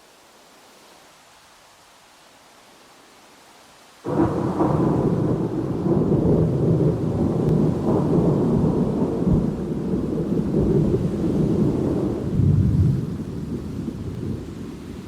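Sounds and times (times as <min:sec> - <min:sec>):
faint hiss: 0:00.0 - 0:15.0
thunder rumbling: 0:04.1 - 0:15.0.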